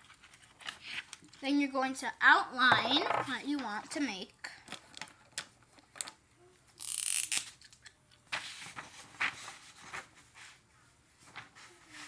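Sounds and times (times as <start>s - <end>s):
paper rustling: 0.0s - 1.4s, 8.3s - 12.0s.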